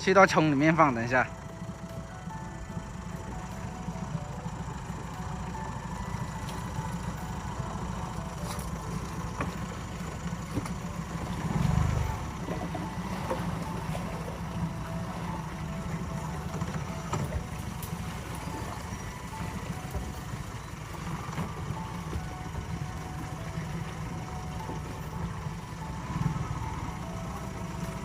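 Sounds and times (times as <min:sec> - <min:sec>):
boat motor running: 0:00.0 - 0:28.0.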